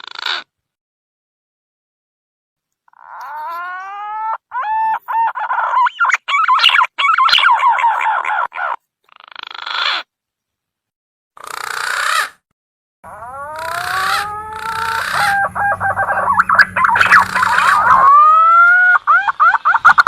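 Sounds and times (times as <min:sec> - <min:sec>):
pigeon whistled calls: 0:04.6 - 0:08.4, 0:13.2 - 0:20.0.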